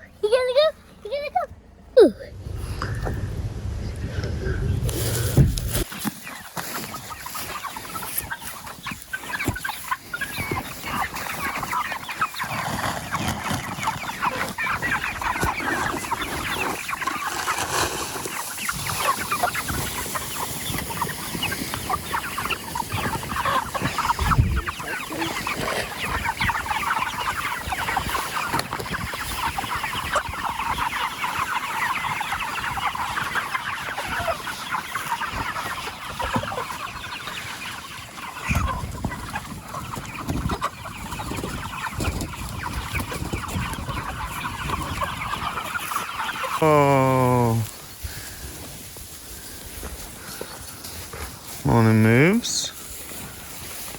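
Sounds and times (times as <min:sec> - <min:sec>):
chickens clucking: 0:00.0 - 0:53.9.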